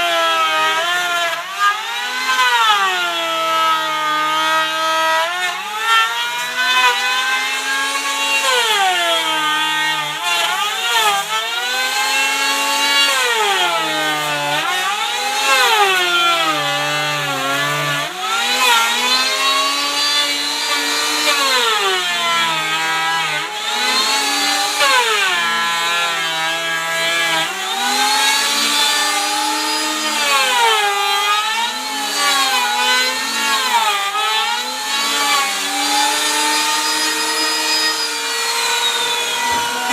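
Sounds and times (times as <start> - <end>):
power tool cutting wood: 0.0 - 39.9.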